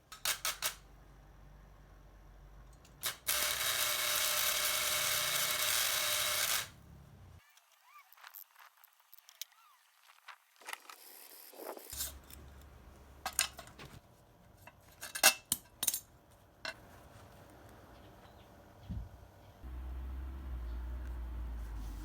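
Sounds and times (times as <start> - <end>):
metal parts clinking: 11.9 - 12.6, 13.2 - 13.8, 14.7 - 16.1.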